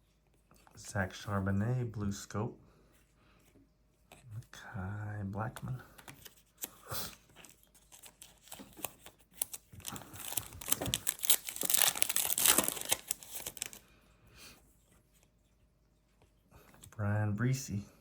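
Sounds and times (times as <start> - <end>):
plastic wrapper crinkling and tearing: 6.2 - 13.8.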